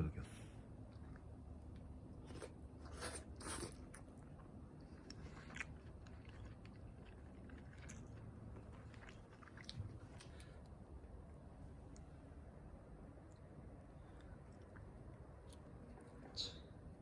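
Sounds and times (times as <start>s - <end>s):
person chewing: 0.9s - 10.8s.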